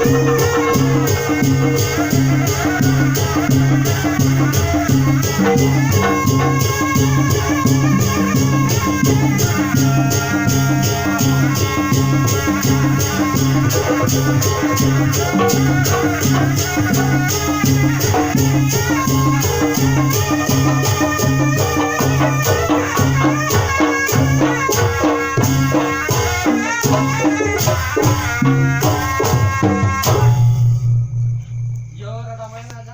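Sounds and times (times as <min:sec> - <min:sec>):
wavering melody line: 0:00.0 - 0:03.0, 0:05.2 - 0:17.6
low pulsing drums: 0:00.0 - 0:32.8.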